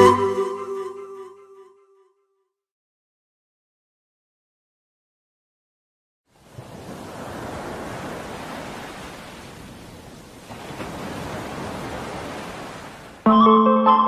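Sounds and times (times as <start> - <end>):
plucked string music: 0.0 - 1.6, 13.3 - 14.0.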